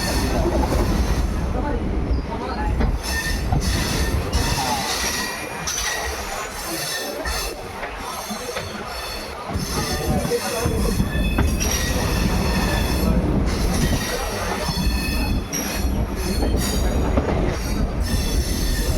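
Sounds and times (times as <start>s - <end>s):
train wheels rumbling on rails: 0.0s - 18.9s
metallic wheel squeal: 3.0s - 7.6s, 8.2s - 17.0s.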